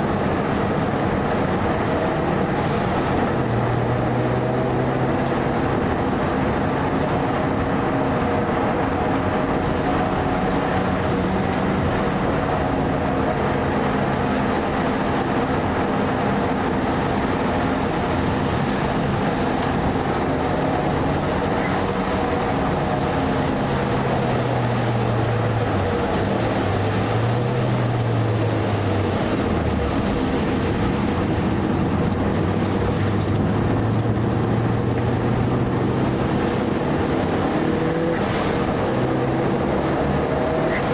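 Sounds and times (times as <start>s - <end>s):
car engine revving: 0.0s - 40.9s
road and wind noise: 0.0s - 40.9s.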